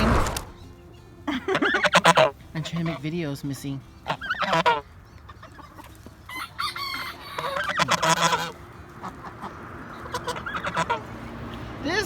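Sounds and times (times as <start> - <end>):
chickens calling: 0.0 - 12.0
geese calling: 0.0 - 12.0
rooster crowing: 6.3 - 8.6.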